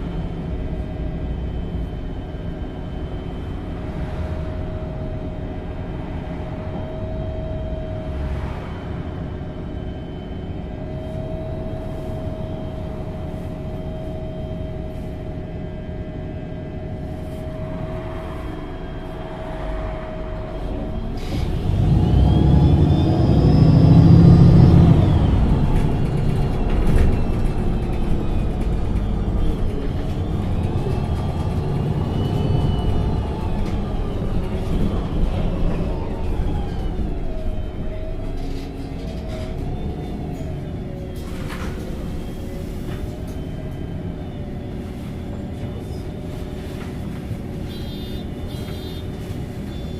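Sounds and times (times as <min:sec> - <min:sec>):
bus engine accelerating: 0:00.0 - 0:49.9
rising whines: 0:00.3 - 0:13.2, 0:16.4 - 0:41.2.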